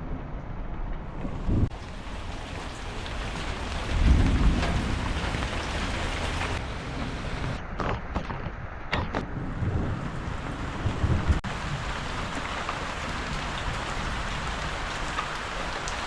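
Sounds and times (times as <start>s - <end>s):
rain falling: 0.0s - 7.6s, 9.4s - 16.0s.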